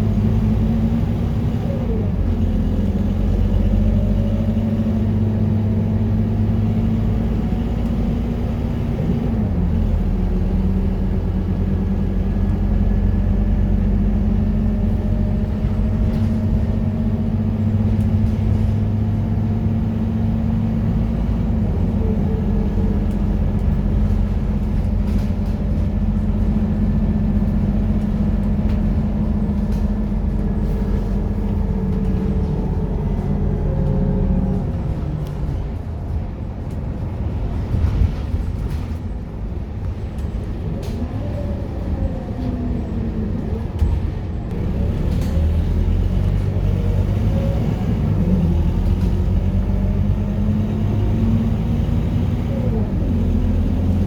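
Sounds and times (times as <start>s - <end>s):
bus diesel engine drone: 0.0s - 54.0s.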